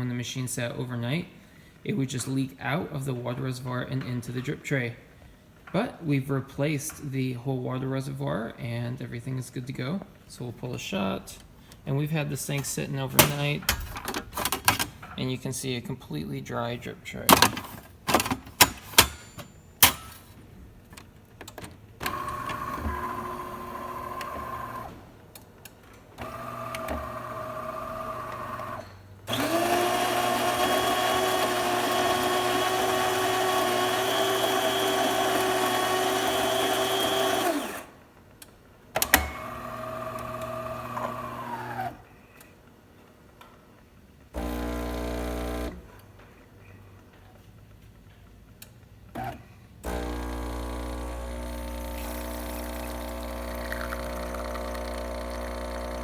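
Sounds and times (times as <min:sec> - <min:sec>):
espresso machine motor whine: 0:22.1 - 0:25.0, 0:26.2 - 0:37.9, 0:39.2 - 0:42.0, 0:44.4 - 0:45.9, 0:49.8 - 0:56.0
grinder grinding beans: 0:22.1 - 0:25.0, 0:26.2 - 0:38.0, 0:39.4 - 0:41.8, 0:49.8 - 0:56.0
pump low buzz: 0:44.4 - 0:45.8, 0:49.8 - 0:56.0.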